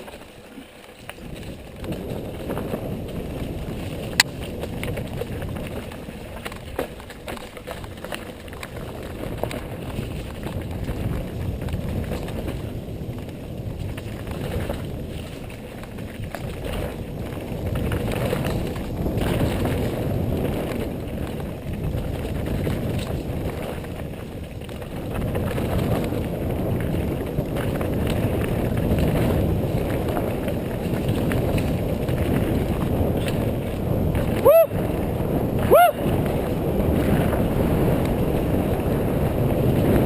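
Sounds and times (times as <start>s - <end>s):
bike clicks and rattles: 0.0s - 40.0s
tyres rolling on dirt trail: 0.0s - 40.0s
wind rushing over microphone: 1.1s - 40.0s.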